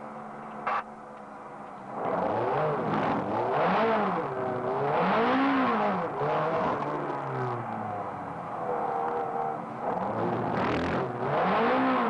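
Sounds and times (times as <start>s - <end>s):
sports car engine revving: 1.9s - 12.0s.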